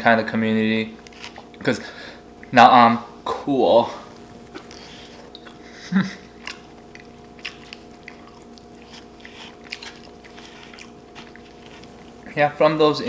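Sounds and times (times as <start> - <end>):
faint steady hum: 0.0 - 13.0
person chewing food: 1.0 - 1.7, 4.1 - 12.3.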